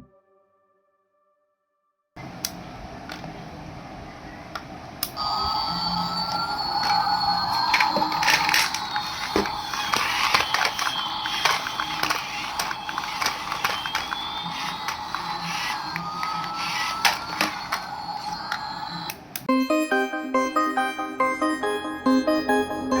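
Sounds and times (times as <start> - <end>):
small electric motor whine: 5.2 - 19.3
toy clicks: 7.6 - 19.5.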